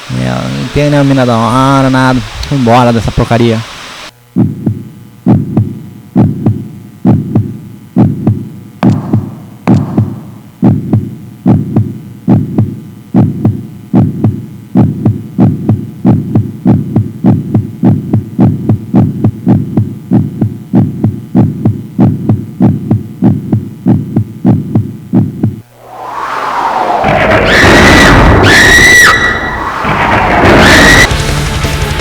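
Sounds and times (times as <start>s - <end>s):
heartbeat thumps: 4.3s - 26.0s.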